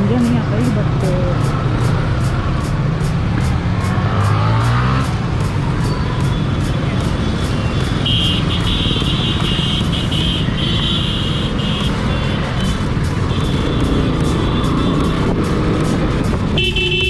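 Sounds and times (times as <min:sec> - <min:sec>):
motorcycle engine: 0:00.0 - 0:17.0
high beeping tone: 0:04.2 - 0:10.1.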